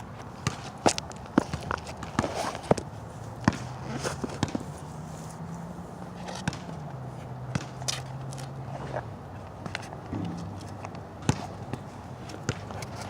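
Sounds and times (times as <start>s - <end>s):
shoes slapping wet court: 0.4s - 4.8s, 6.2s - 9.0s, 9.6s - 13.0s
basketball bouncing: 3.4s - 4.6s, 7.5s - 7.8s.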